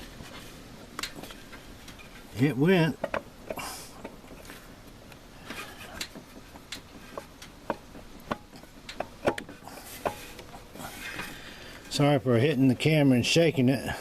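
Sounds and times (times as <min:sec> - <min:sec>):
metal parts clicking and tapping: 0:02.9 - 0:04.5, 0:05.1 - 0:11.4.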